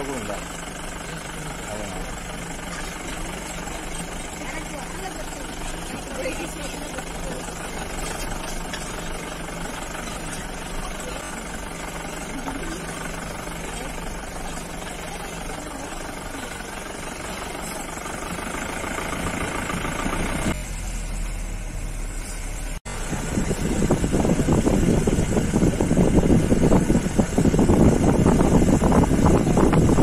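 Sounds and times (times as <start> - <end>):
vehicle engine running: 0.0 - 30.0
wind buffeting microphone: 23.0 - 30.0.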